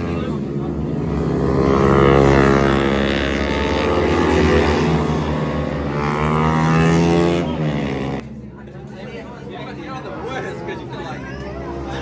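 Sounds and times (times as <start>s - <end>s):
small bike engine revving: 0.0s - 8.4s.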